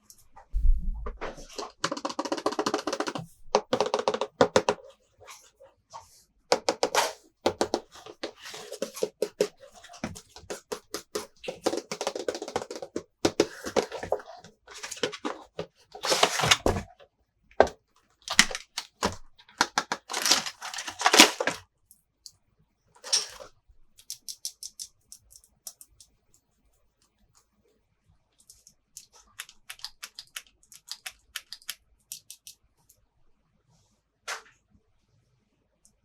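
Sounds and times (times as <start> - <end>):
crinkling plastic packaging: 18.3 - 21.6
plastic pieces clicking: 18.3 - 21.6.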